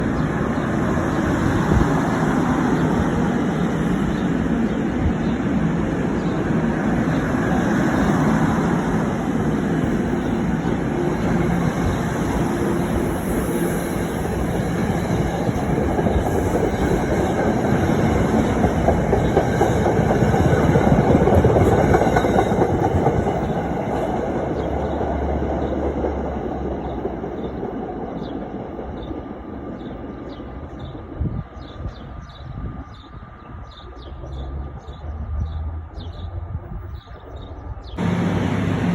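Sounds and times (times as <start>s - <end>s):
train wheels rumbling and clicking: 9.8s - 29.5s, 38.0s - 38.9s.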